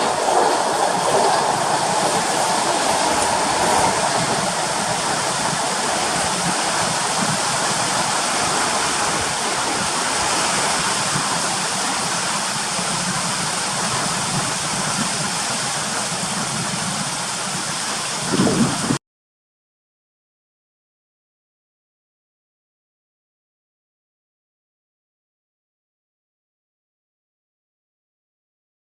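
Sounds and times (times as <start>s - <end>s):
heavy rain hissing: 0.0s - 19.0s.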